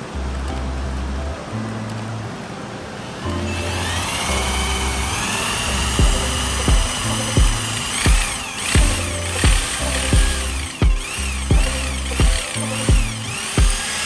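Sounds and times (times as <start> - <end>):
steady high whine: 3.0 - 14.0
background music with thumping beat: 6.0 - 13.9.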